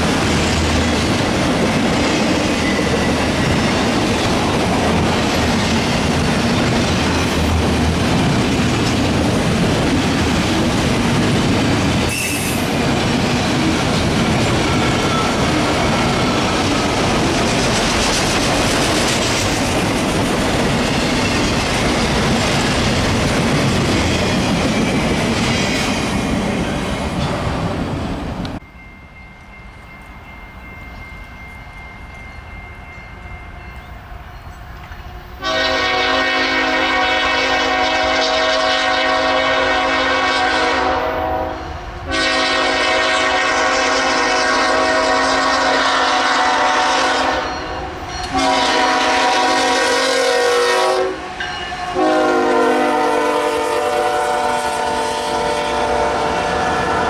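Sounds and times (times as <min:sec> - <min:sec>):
train wheels clattering on rails: 0:00.0 - 0:28.6
locomotive air horn blasts: 0:35.4 - 0:47.7, 0:48.3 - 0:51.3, 0:51.9 - 0:57.0.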